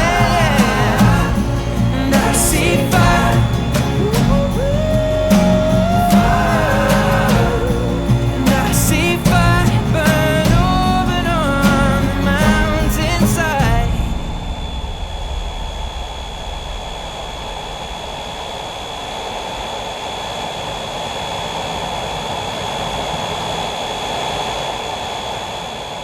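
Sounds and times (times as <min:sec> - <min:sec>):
aircraft engines running: 0:00.0 - 0:20.6
high engine whine: 0:00.0 - 0:21.4.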